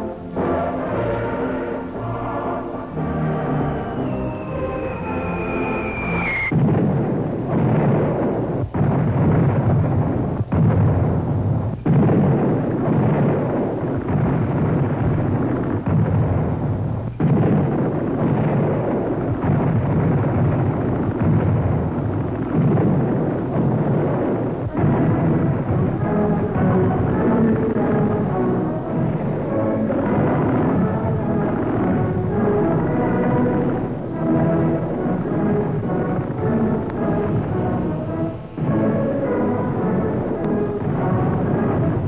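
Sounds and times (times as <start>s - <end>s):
music: 0.0s - 42.0s
falling bomb whistle: 3.4s - 6.6s
explosion blasts: 3.7s - 42.0s
rumbling artillery fire: 4.0s - 42.0s.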